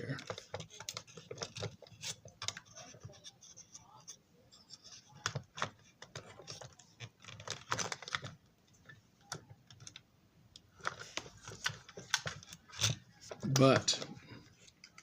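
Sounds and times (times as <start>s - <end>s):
screwdriver and plastic parts clicking: 0.2s - 3.2s.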